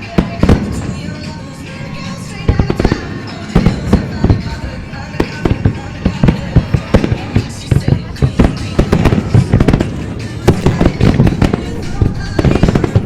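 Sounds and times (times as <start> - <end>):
fireworks bangs: 0.0 - 13.0
pop music: 0.0 - 13.0.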